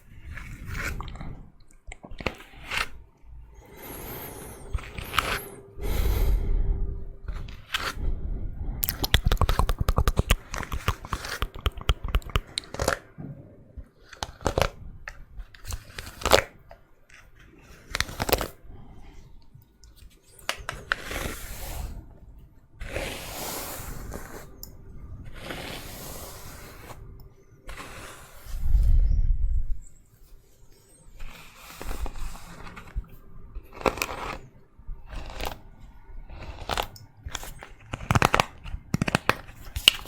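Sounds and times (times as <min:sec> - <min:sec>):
hairbrush bristles through hair: 0:22.8 - 0:24.5.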